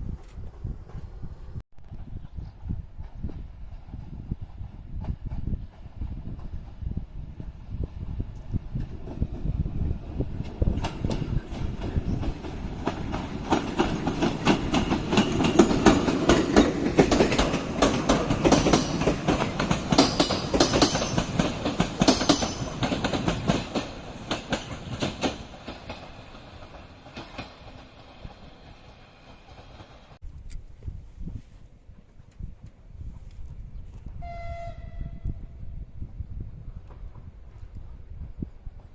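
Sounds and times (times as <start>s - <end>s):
train wheels clattering over rails: 3.0s - 30.2s.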